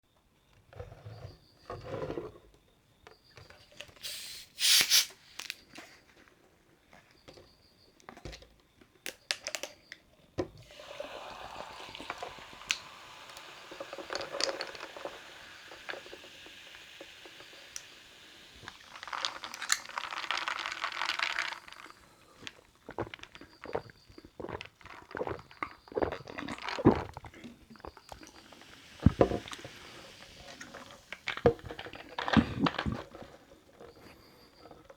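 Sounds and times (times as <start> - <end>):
gas hissing from opened drink: 4.0 - 5.6, 10.6 - 22.5, 28.0 - 33.0
sparkling water pouring and fizzing: 4.0 - 5.6, 10.6 - 23.8, 26.2 - 33.2.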